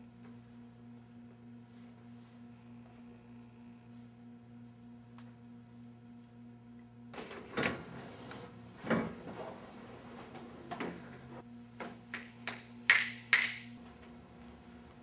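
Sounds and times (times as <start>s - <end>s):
faint low hum: 0.0s - 9.2s.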